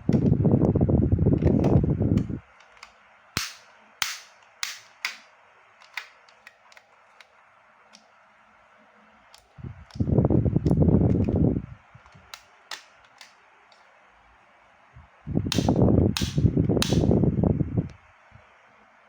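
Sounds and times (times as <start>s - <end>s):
loud low rumbling: 0.0s - 2.4s, 15.0s - 17.9s
pistol mechanism clicks: 2.6s - 7.3s, 15.5s - 17.0s
airsoft pistol snaps: 3.4s - 5.3s, 15.5s - 17.1s.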